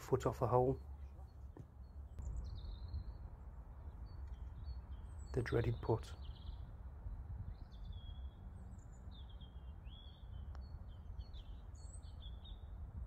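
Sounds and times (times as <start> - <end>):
songbirds chirping and singing: 0.0 - 13.0.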